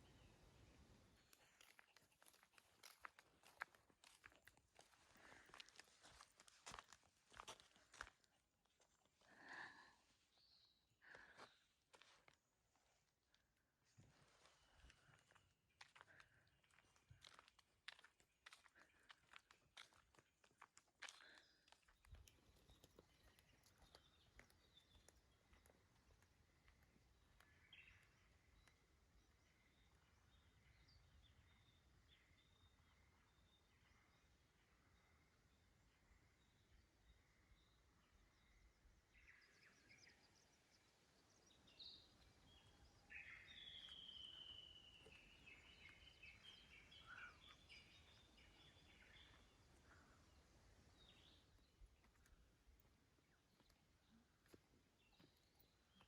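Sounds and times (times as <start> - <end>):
faint bird chirps: 21.1 - 56.0.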